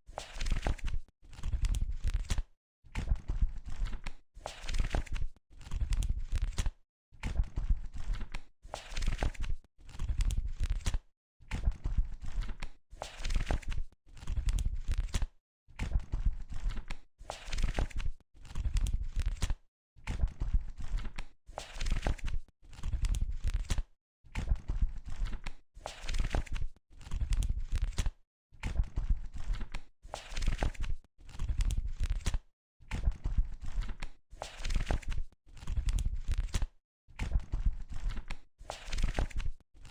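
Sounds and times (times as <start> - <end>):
book pages flipping: 0.1 - 2.4, 3.7 - 6.7, 8.0 - 11.0, 12.3 - 15.3, 16.6 - 19.6, 20.9 - 23.8, 25.2 - 28.1, 29.4 - 32.4, 33.6 - 36.7, 37.6 - 39.9.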